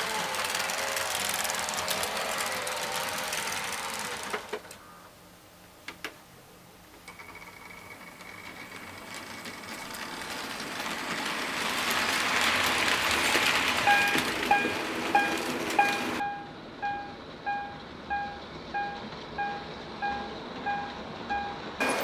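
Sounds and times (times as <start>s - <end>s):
model train motor whine: 0.0s - 4.8s
wheels on rails: 0.0s - 4.8s, 7.0s - 22.0s.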